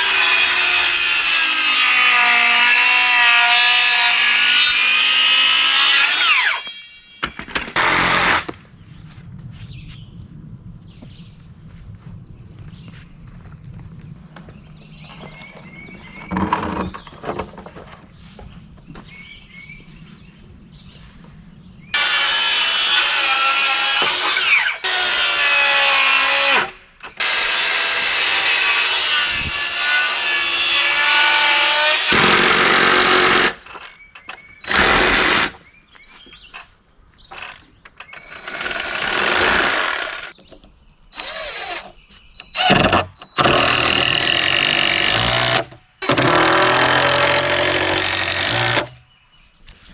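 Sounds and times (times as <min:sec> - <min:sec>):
power tools working wood: 0:00.0 - 0:06.6, 0:07.7 - 0:08.6, 0:22.0 - 0:33.6, 0:34.6 - 0:35.6, 0:37.4 - 0:40.3, 0:41.2 - 0:41.9, 0:42.5 - 0:49.0.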